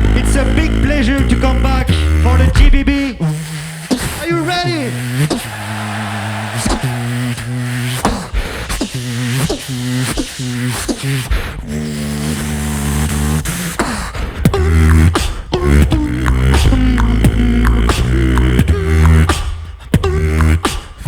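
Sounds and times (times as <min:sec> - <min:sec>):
hummed bass line: 0:00.0 - 0:03.1, 0:14.4 - 0:20.6
deep louder bass: 0:00.0 - 0:03.2, 0:14.4 - 0:20.6
beatbox drum hits: 0:00.0 - 0:21.0.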